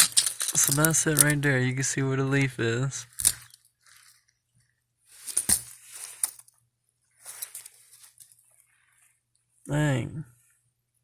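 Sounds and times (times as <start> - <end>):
stems snapping: 3.1 - 3.6
leaves and stems rustling: 5.1 - 6.5, 7.2 - 8.4.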